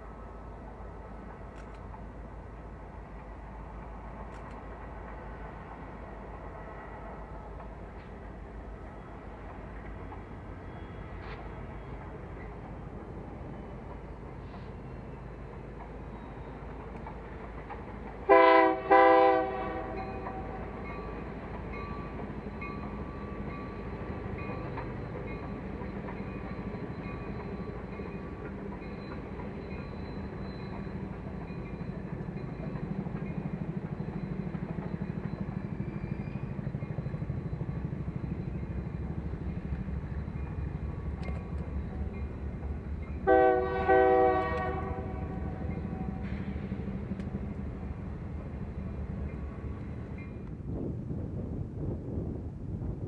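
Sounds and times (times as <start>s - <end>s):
train rumbling: 0.0s - 53.0s
train horn blasts: 18.2s - 20.8s, 43.2s - 46.4s.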